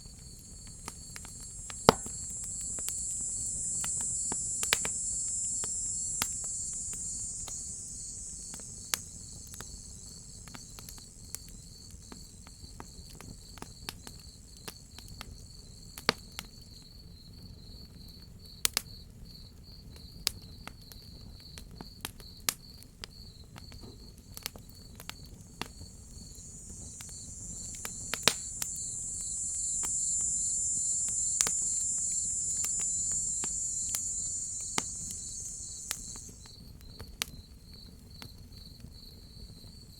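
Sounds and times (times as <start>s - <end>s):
cicadas droning: 0.0s - 16.8s, 23.2s - 36.9s
crickets chirping: 0.0s - 17.3s, 23.2s - 36.9s
wood fire crackling: 0.1s - 11.3s, 25.3s - 36.5s.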